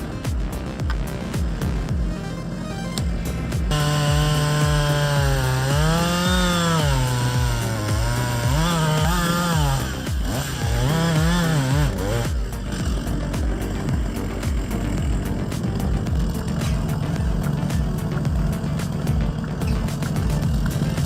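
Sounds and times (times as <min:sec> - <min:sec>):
background music with thumping beat: 0:00.0 - 0:21.0
chainsaw running under load: 0:00.0 - 0:21.0.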